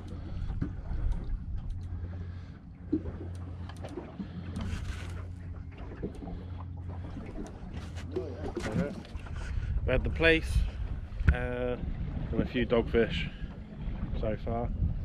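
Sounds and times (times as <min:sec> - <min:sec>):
outboard motor idling: 0:00.0 - 0:11.4.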